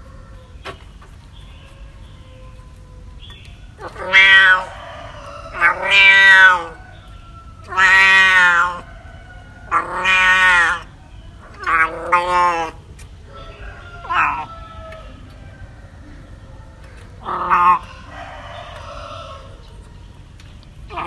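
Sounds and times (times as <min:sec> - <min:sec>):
cat meowing: 0:03.8 - 0:04.8, 0:05.5 - 0:06.8, 0:07.6 - 0:08.8, 0:09.7 - 0:10.9, 0:11.5 - 0:12.8, 0:14.0 - 0:14.5.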